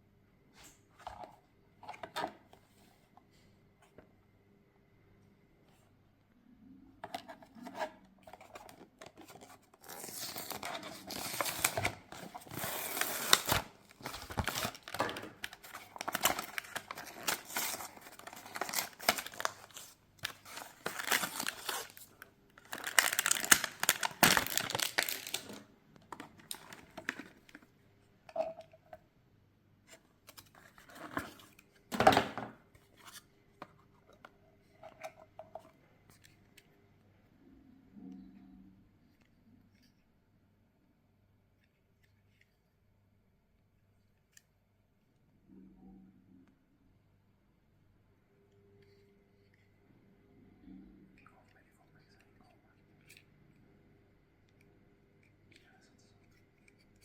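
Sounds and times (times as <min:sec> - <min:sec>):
packaging torn and crinkled: 0:09.8 - 0:25.6.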